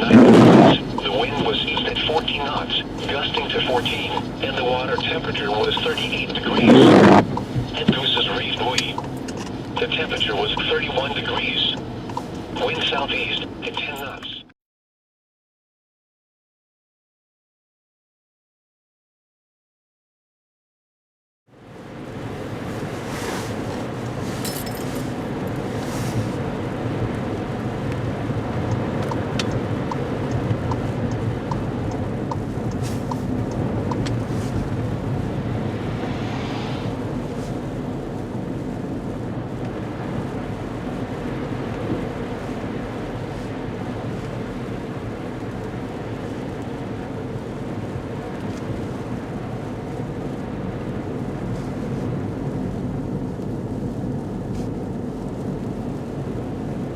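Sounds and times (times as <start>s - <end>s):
car road and engine noise: 0.0s - 14.5s, 21.5s - 56.9s
light ticks: 28.6s - 34.2s.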